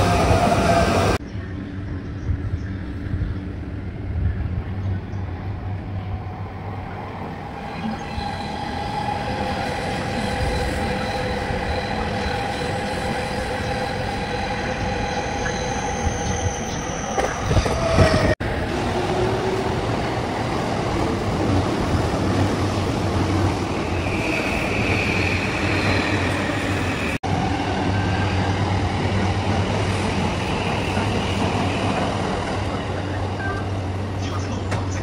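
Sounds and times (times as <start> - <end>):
high wheel squeal: 23.8 - 27.2.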